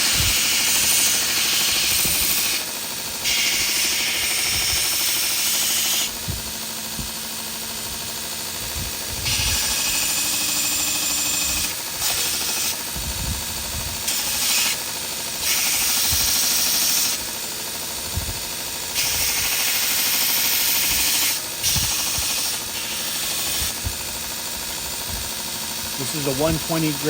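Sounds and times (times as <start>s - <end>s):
wood sanding hiss: 0.0s - 6.3s, 15.4s - 17.2s, 18.9s - 27.0s
belt grinder running: 0.0s - 27.0s.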